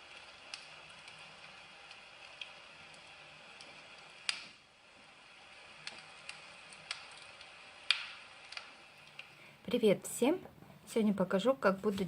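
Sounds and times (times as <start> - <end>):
faint irregular clicks: 0.0 - 4.5, 5.8 - 9.4
low hiss: 0.0 - 12.0.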